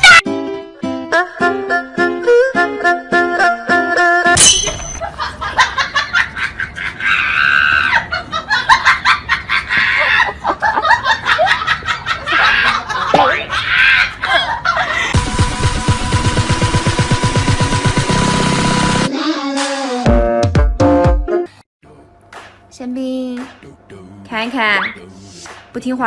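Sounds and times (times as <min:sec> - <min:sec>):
person laughing and shrieking: 0:06.8 - 0:08.2, 0:12.2 - 0:15.1.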